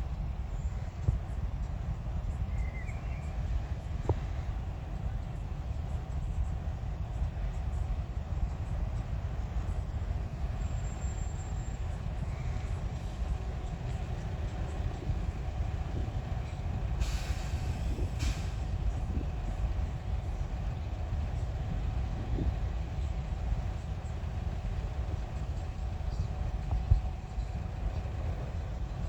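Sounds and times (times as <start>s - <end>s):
train rumbling past: 0.0s - 29.0s
hiss: 17.0s - 19.9s.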